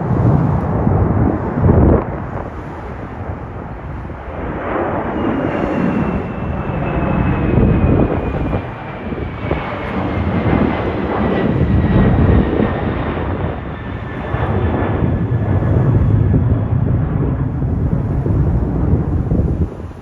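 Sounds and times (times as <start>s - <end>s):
airliner engines rumbling: 0.0s - 20.0s
high whine falling in pitch: 3.9s - 19.6s.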